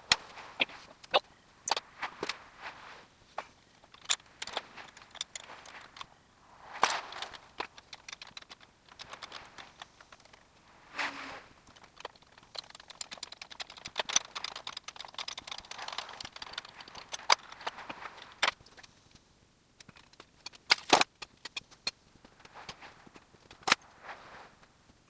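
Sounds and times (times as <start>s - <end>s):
metal tools clinking and rattling: 3.8s - 6.1s, 19.8s - 23.8s.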